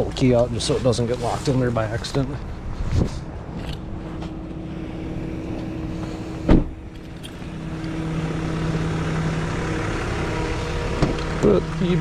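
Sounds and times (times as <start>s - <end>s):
vehicle engine idling: 0.0s - 12.0s
loud thump: 6.4s - 6.8s.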